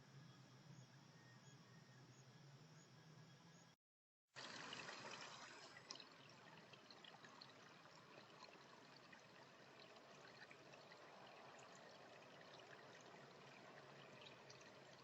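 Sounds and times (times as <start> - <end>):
trickle of running water: 4.4 - 15.0.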